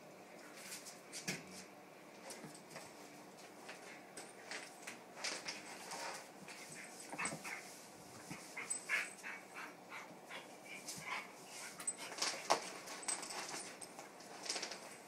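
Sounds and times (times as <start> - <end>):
dogs play-wrestling vocalising: 6.5 - 12.4.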